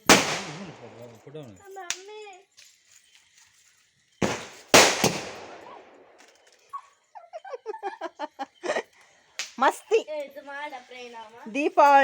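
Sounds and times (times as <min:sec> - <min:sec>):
firecracker bangs: 0:00.0 - 0:01.0, 0:04.2 - 0:06.0.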